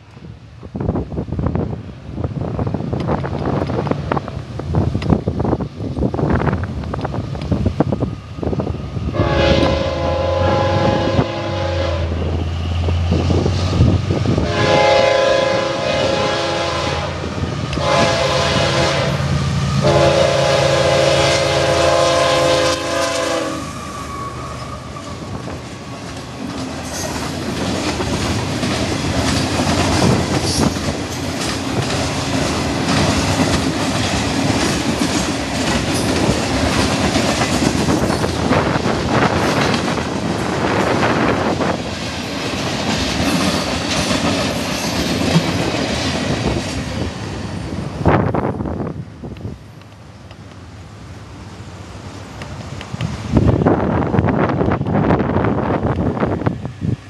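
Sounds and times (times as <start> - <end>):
wind buffeting microphone: 0.1 - 49.9, 52.4 - 57.0
locomotive air horn blasts: 9.1 - 12.3, 14.4 - 24.7
train wheels clacking on rail: 12.2 - 47.6.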